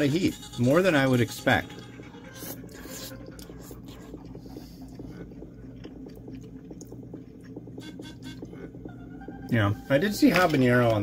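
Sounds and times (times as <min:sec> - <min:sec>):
person chewing: 0:01.7 - 0:09.0.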